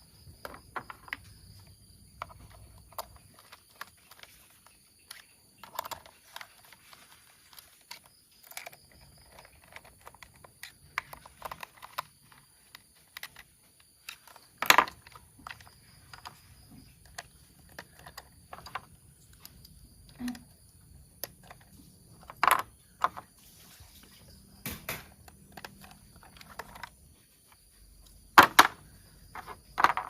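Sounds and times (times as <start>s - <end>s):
plastic toy parts clattering: 0.4s - 1.3s, 2.2s - 20.4s, 21.2s - 23.3s, 24.9s - 27.0s, 28.4s - 30.0s
plastic toy parts clicking: 2.2s - 16.4s.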